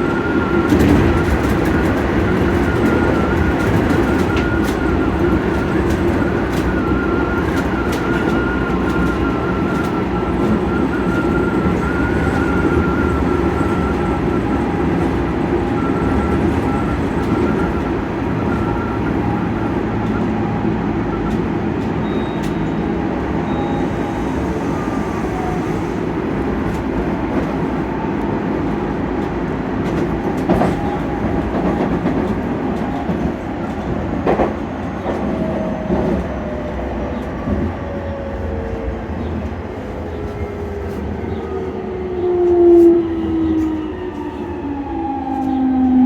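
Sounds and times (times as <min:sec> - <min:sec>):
train rumbling on track: 0:00.0 - 0:46.0
rail-joint clicks: 0:21.1 - 0:22.9, 0:29.2 - 0:37.8.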